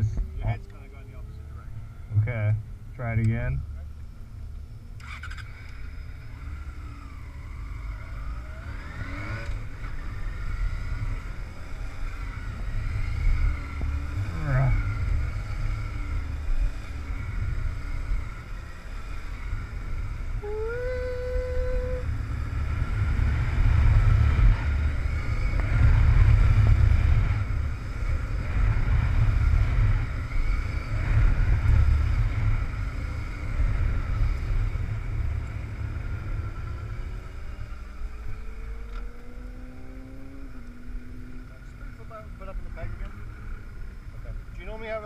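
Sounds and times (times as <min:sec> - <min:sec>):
motorcycle engine at part-throttle: 0:00.0 - 0:45.0
wind rumble on microphone: 0:06.4 - 0:39.0.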